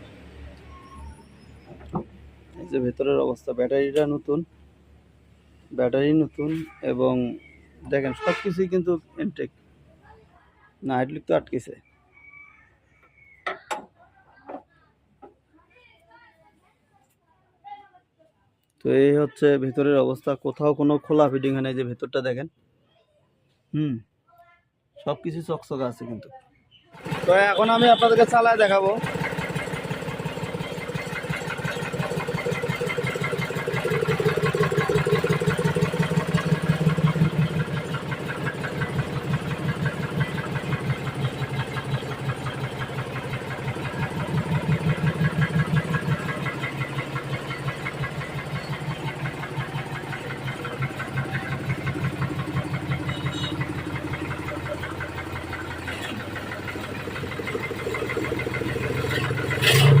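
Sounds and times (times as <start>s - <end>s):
tractor diesel engine running: 27.0s - 60.0s.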